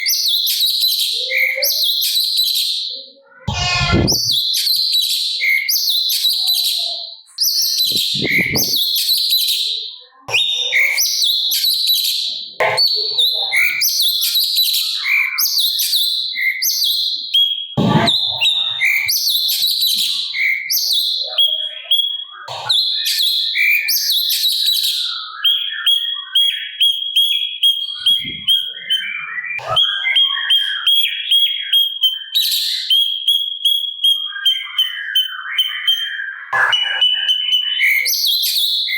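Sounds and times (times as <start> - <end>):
bird singing chattering phrases: 0.0 - 38.9
brief low thumps: 3.5 - 4.4, 7.9 - 8.8.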